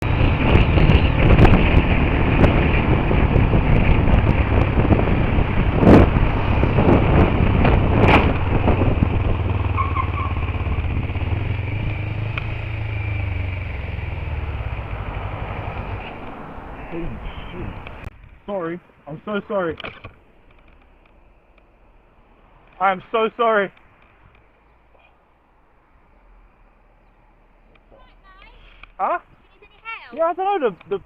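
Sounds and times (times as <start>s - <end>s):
motorcycle riding: 0.0s - 18.4s, 19.3s - 31.0s
sharp motorcycle bangs: 6.8s - 12.7s.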